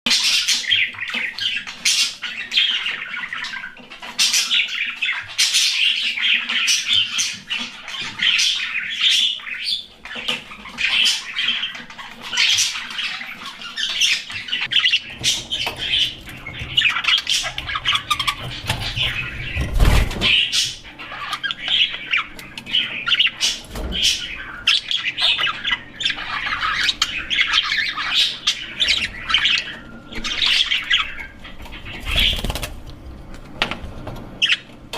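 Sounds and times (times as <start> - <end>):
budgerigars chirping: 0.1 - 32.8, 34.4 - 34.8.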